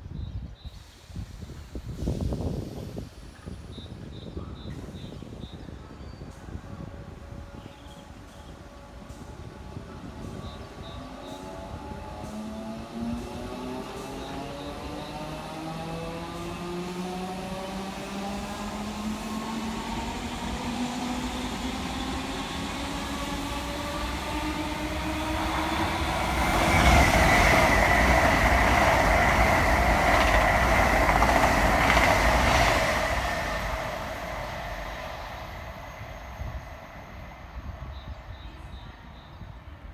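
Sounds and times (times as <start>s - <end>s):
rushing wheel noise: 6.8s - 38.3s.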